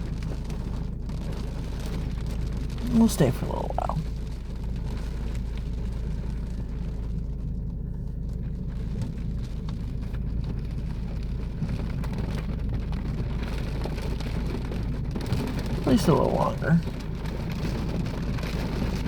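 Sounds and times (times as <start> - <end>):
car interior rumble: 0.0 - 19.0
raindrops ticking on car: 0.0 - 19.0.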